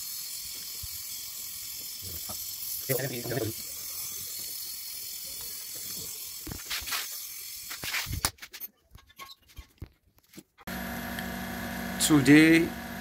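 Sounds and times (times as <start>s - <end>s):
brazing torch hissing: 0.0s - 8.1s.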